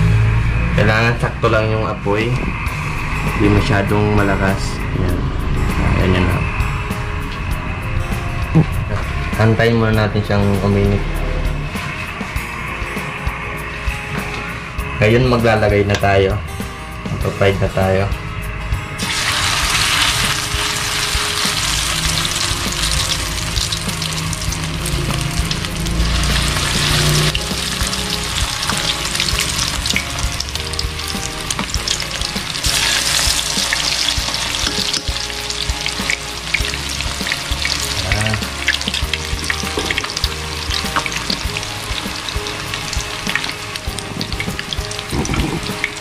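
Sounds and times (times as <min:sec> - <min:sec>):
oil crackling and popping: 0:19.0 - 0:46.0
patties sizzling in hot oil: 0:19.0 - 0:46.0.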